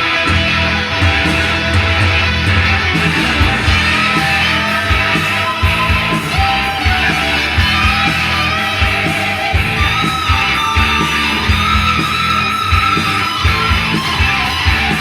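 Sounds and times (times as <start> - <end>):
hard rock music: 0.0 - 15.0.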